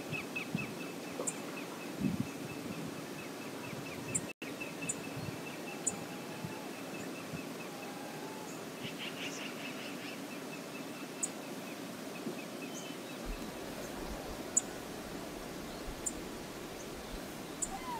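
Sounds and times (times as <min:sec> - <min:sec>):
low rush of background noise: 0:03.0 - 0:17.9
faint bird chirps: 0:16.8 - 0:17.9.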